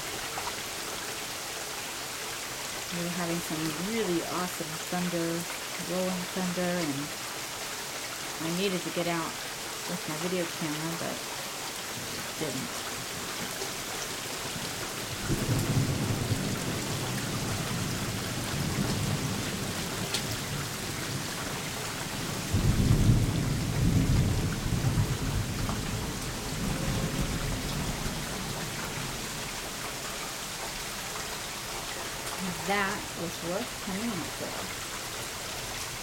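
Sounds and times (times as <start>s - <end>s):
gentle rain: 0.0s - 36.0s
rolling thunder: 15.1s - 29.6s.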